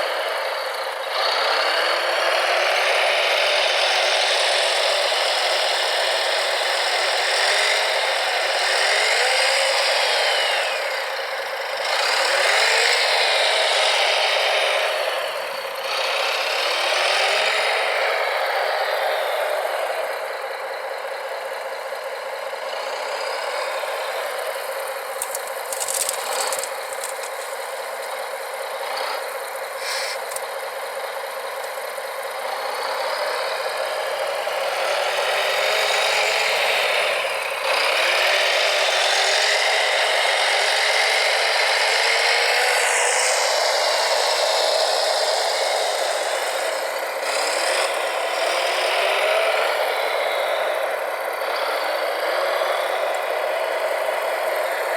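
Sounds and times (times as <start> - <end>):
electric motors whining and rattling: 0.0 - 54.9
sharp clicks: 25.2 - 27.6.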